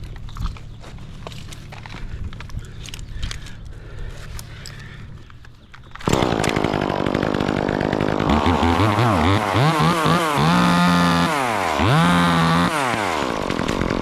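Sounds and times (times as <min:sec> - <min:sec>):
chainsaw engine revving: 0:06.0 - 0:14.0.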